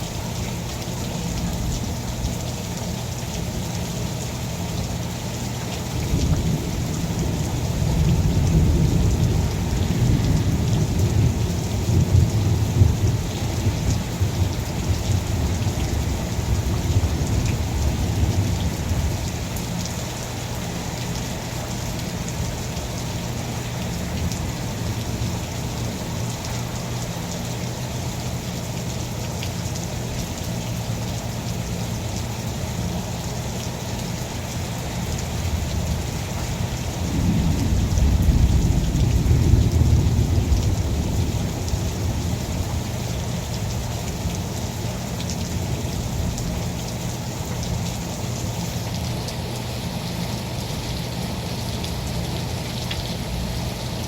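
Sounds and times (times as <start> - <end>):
steady rain falling: 0.0 - 54.0
rolling thunder rumble: 6.0 - 19.5, 35.4 - 43.9.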